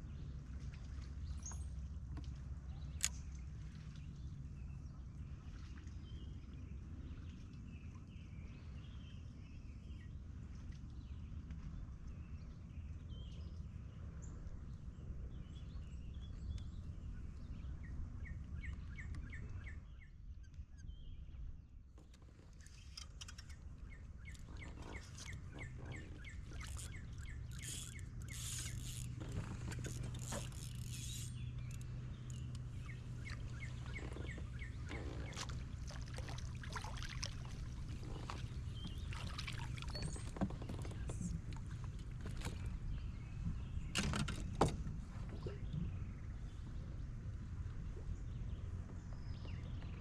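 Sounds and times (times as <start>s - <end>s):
small clicks and knocks: 22.0s - 23.6s, 24.3s - 35.5s
bird trilling: 24.3s - 29.1s.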